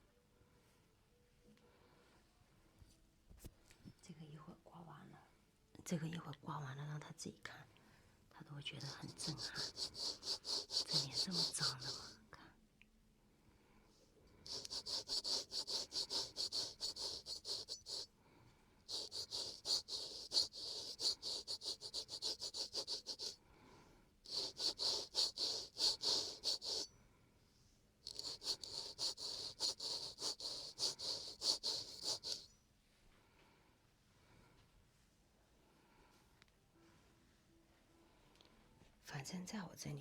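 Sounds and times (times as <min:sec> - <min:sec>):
razor scraping skin: 0:08.9 - 0:12.1, 0:14.5 - 0:18.1, 0:18.9 - 0:23.4, 0:24.3 - 0:26.9, 0:28.1 - 0:32.5.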